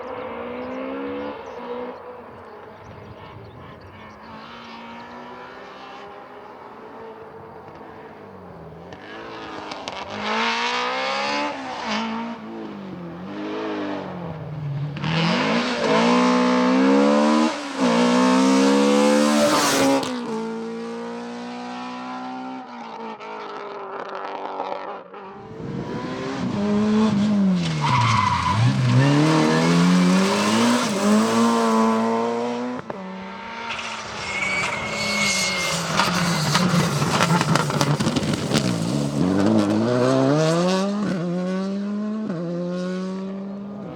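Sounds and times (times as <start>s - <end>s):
rally car engines revving: 0.0s - 43.9s
tyres squealing: 27.4s - 32.2s, 33.5s - 39.4s.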